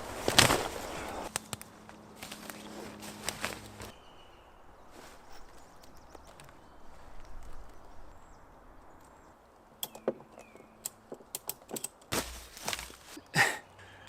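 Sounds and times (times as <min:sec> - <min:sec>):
hands rustling gear: 0:00.0 - 0:04.0, 0:04.9 - 0:08.0, 0:09.8 - 0:13.6
sharp clicks and knocks: 0:09.8 - 0:12.9.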